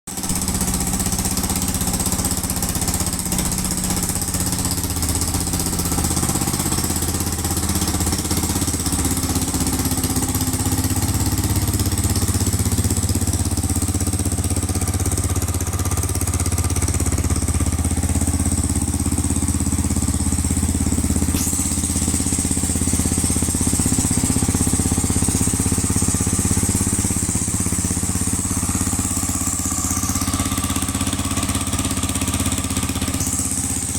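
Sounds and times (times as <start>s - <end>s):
motorcycle engine idling: 0.1s - 33.9s.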